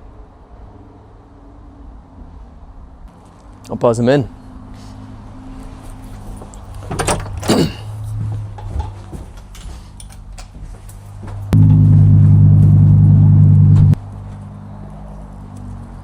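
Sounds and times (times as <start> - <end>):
intercom buzzer hum: 11.6 - 14.0.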